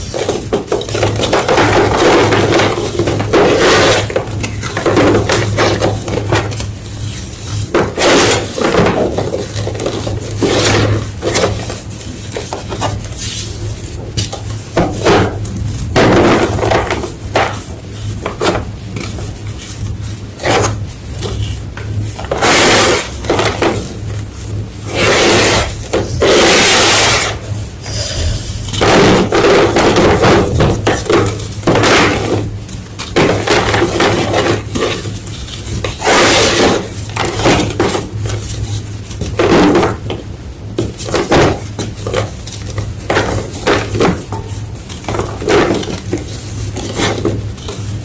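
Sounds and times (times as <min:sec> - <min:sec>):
low hum: 0:27.7 - 0:28.8.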